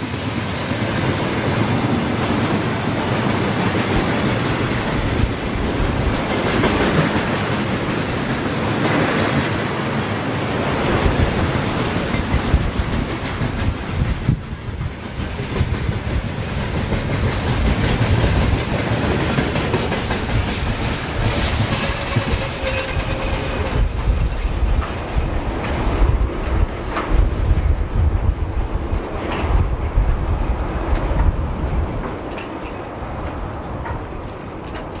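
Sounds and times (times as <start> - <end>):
train passing close by: 0.0 - 35.0
wheels clattering over rail joints: 0.2 - 27.6, 28.8 - 35.0.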